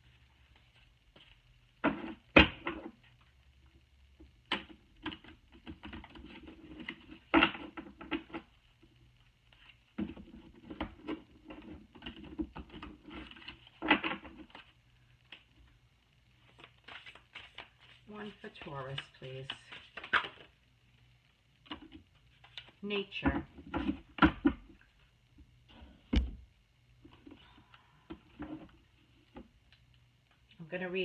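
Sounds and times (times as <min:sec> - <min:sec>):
cards being shuffled: 0:16.4 - 0:20.6.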